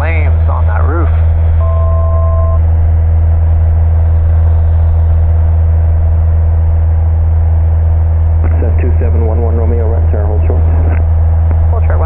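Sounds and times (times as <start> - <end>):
propeller plane engine droning: 0.0 - 12.0
two-tone beep: 1.6 - 2.6.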